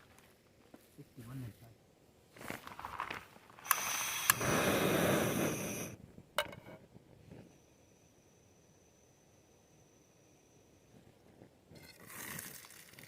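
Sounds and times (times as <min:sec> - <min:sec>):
sharp clicks: 0:03.6 - 0:04.6.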